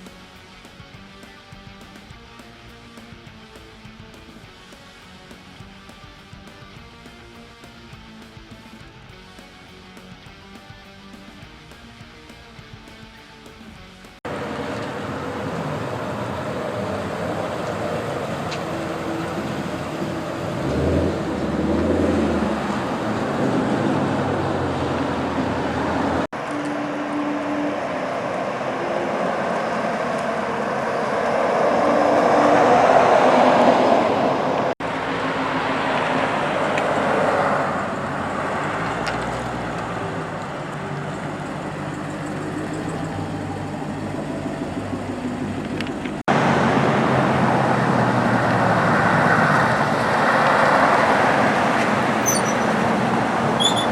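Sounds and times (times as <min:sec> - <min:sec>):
outdoor background noise: 0:00.0 - 0:53.9
car engines running: 0:13.8 - 0:53.9.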